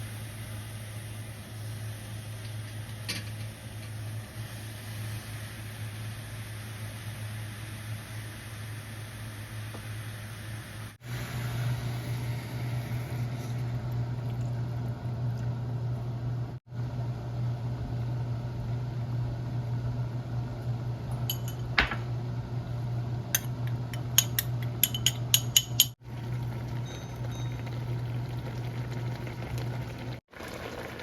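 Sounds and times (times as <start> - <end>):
dishes and cutlery clinking: 23.4 - 26.0.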